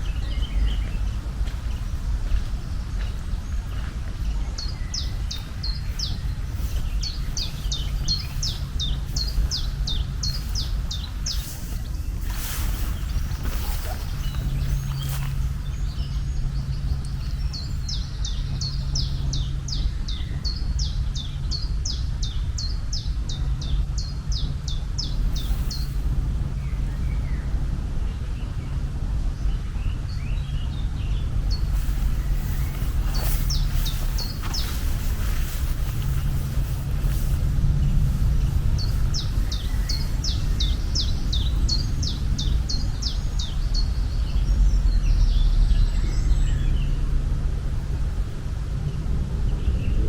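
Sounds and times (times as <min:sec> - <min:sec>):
steady low rumble: 0:00.0 - 0:50.0
songbird falling chirps: 0:05.0 - 0:16.2, 0:31.4 - 0:38.0.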